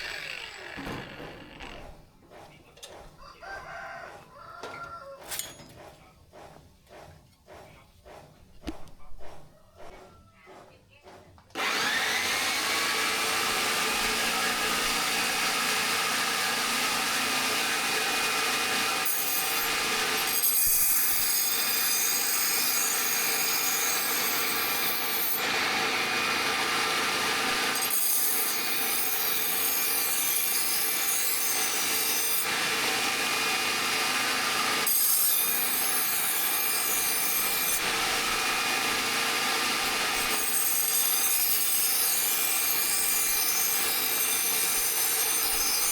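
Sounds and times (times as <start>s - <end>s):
power tool grinding steel: 0.0s - 2.0s, 11.6s - 45.9s.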